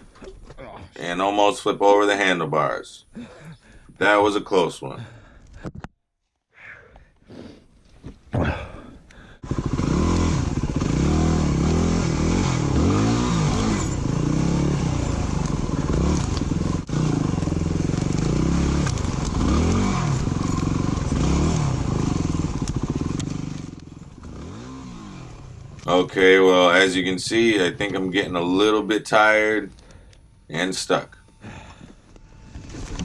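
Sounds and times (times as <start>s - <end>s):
dirt bike engine revving: 9.4s - 27.7s.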